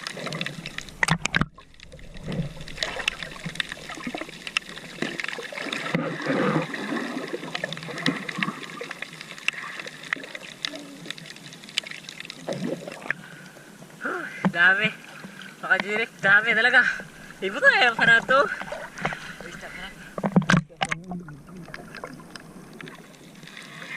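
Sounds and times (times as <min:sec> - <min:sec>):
seawater sloshing and trickling: 0:00.0 - 0:13.6, 0:14.9 - 0:23.9.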